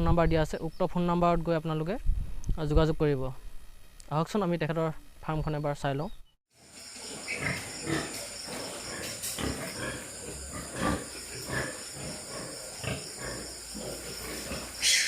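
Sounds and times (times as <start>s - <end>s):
pigs grunting: 7.0s - 15.0s.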